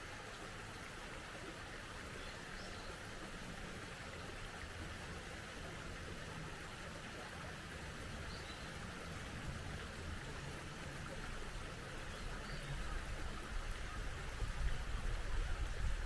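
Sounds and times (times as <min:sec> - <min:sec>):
mountain stream rushing: 0:00.0 - 0:16.0
faint bird chirp: 0:08.2 - 0:08.8.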